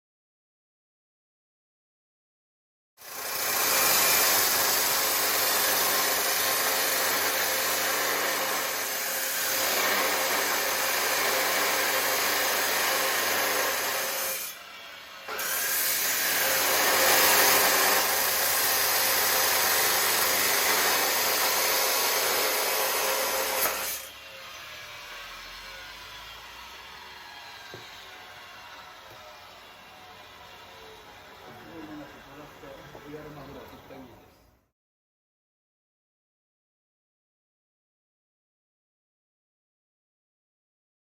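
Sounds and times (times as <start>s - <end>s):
power tool grinding metal: 3.0s - 34.1s.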